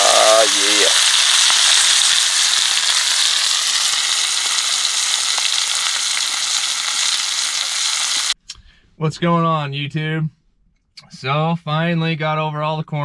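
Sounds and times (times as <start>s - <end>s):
fish sizzling in hot oil: 0.0s - 8.4s
oil popping: 0.0s - 8.4s.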